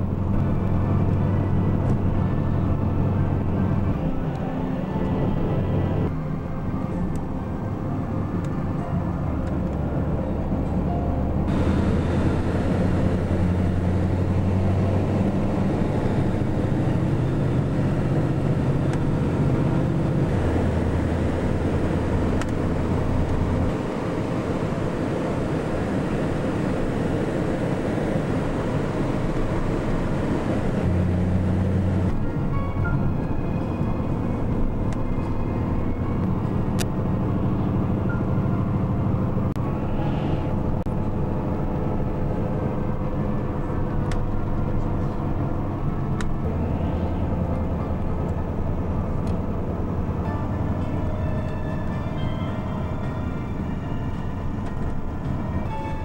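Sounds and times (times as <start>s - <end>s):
road noise: 0.0s - 56.0s
vehicle engine rumble: 0.0s - 56.0s.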